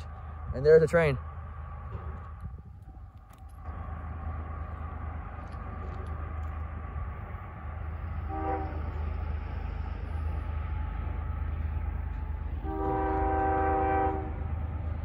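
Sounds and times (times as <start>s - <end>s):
freight train rumbling on track: 0.0s - 15.0s
locomotive horn blast: 8.2s - 9.2s, 12.5s - 14.5s.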